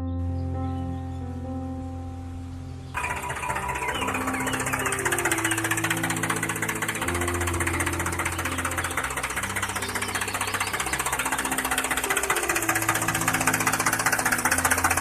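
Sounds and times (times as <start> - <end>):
small electric motor buzzing: 3.0 - 15.0.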